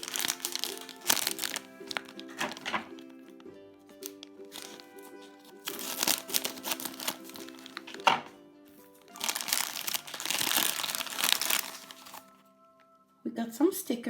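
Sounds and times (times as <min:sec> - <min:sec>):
foil bag tearing and crinkling: 0:00.0 - 0:03.0, 0:04.0 - 0:08.2, 0:09.1 - 0:12.3
background music: 0:00.0 - 0:14.0.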